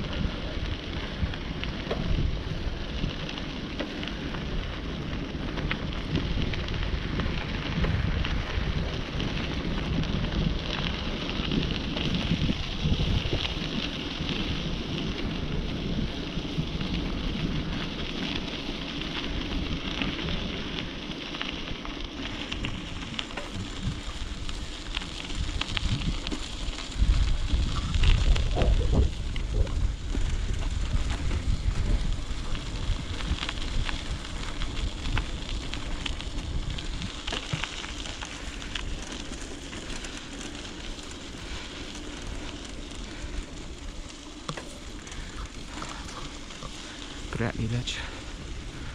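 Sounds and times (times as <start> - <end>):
wind on microphone: 0.0 - 18.6, 22.5 - 39.1
bicycle tyres rolling on path: 0.0 - 48.9.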